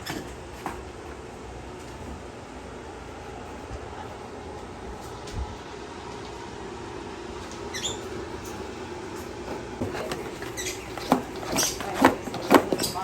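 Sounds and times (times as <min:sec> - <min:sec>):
steady background hum: 0:00.0 - 0:13.0
birds chirping and squeaking: 0:07.5 - 0:08.6, 0:09.8 - 0:13.0.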